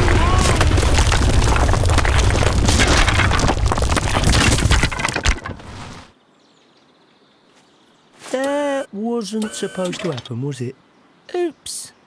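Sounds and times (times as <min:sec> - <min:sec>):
mound of shingle collapsing: 0:00.0 - 0:06.1.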